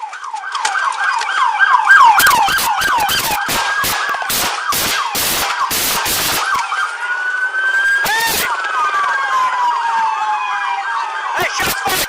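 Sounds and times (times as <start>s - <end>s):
police siren yelping: 0.0s - 12.0s
gunshots: 2.2s - 6.6s.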